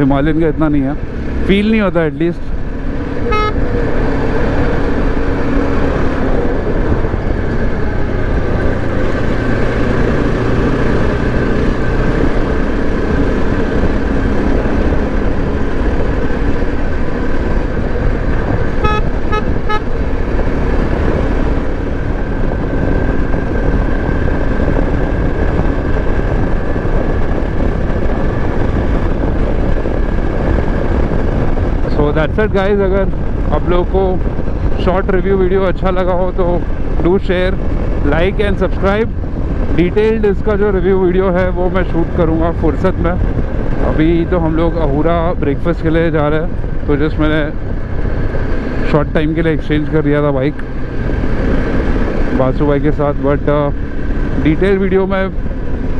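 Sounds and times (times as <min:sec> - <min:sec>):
motorcycle engine running: 0:00.0 - 0:55.9
road and wind noise: 0:00.0 - 0:55.9
vehicle horn toots: 0:03.2 - 0:03.7, 0:18.8 - 0:20.0.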